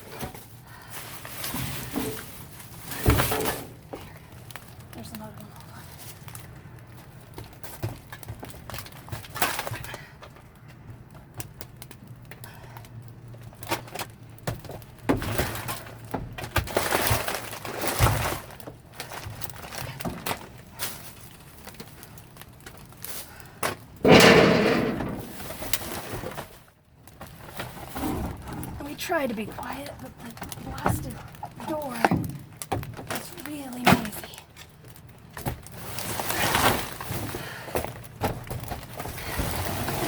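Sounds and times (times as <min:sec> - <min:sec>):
rummaging through wet boxes: 0:00.0 - 0:04.9, 0:15.0 - 0:24.2, 0:27.2 - 0:40.0
door creaking loudly: 0:24.0 - 0:25.5
knocks and rustles: 0:24.0 - 0:26.6.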